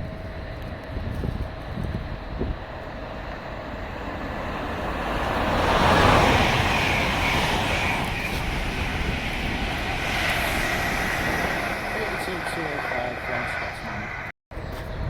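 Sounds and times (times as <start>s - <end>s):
electric train passing: 0.0s - 14.3s.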